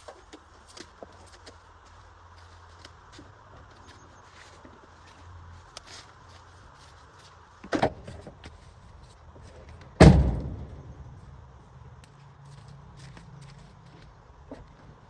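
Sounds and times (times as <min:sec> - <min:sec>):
car door slamming: 0:10.0 - 0:11.0.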